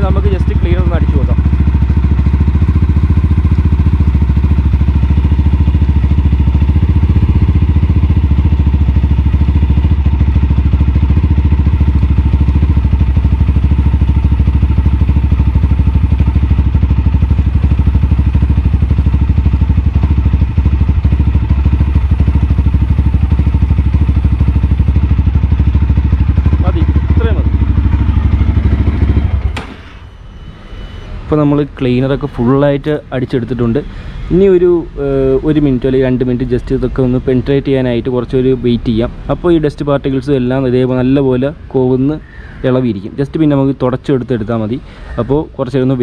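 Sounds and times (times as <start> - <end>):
motorcycle engine idling: 0.0 - 30.0, 31.7 - 46.0.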